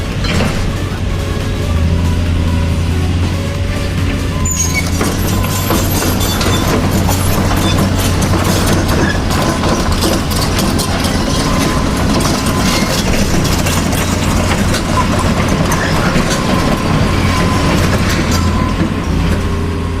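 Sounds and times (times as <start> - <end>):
clattering clicks and rattles: 4.8 - 19.5.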